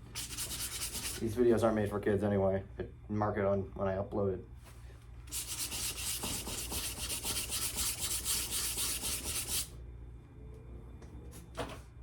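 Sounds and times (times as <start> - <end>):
sandpaper rubbing on metal: 0.2 - 1.2, 5.3 - 9.7.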